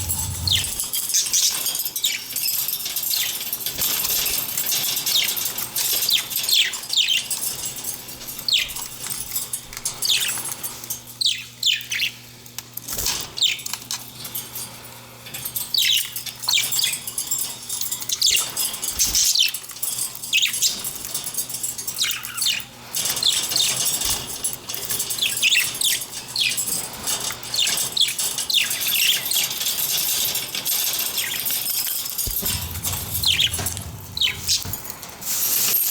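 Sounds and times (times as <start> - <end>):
budgerigars chirping and chattering: 0.0 - 0.8, 32.4 - 34.7.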